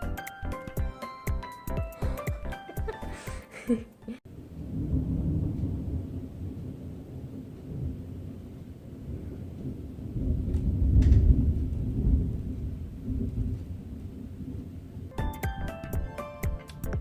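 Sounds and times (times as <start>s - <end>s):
thunder rumbling: 4.3s - 15.1s.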